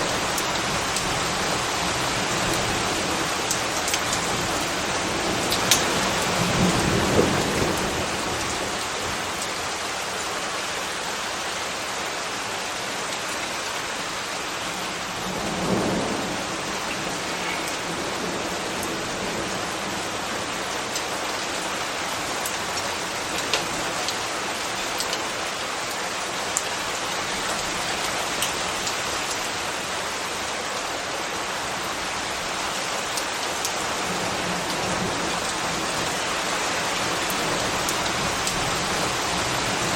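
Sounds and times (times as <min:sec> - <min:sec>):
rain on hard surfaces: 0:00.0 - 0:39.9.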